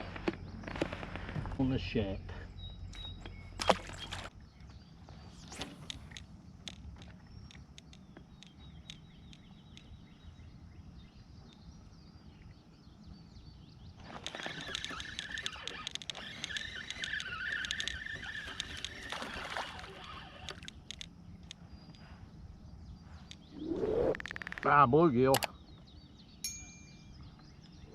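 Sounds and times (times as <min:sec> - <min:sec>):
fishing reel cranking: 0:14.2 - 0:20.7.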